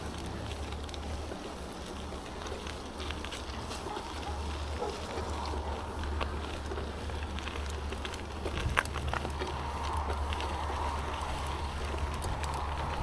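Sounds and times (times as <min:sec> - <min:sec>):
light clicks and crackles: 0:00.0 - 0:13.0
wind rumble on microphone: 0:04.7 - 0:13.0.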